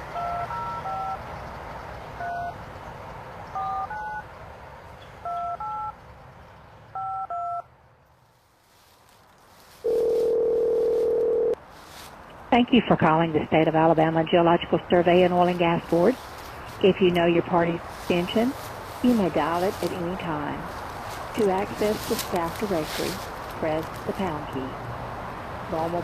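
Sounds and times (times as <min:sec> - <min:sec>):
keypad dialing beeps: 0:00.1 - 0:01.2, 0:02.2 - 0:02.6, 0:03.6 - 0:04.2, 0:05.2 - 0:05.9, 0:07.0 - 0:07.6
phone ringback tone: 0:00.1 - 0:01.2, 0:02.2 - 0:02.6, 0:03.6 - 0:04.3, 0:05.2 - 0:06.0, 0:07.0 - 0:07.6, 0:09.8 - 0:11.6.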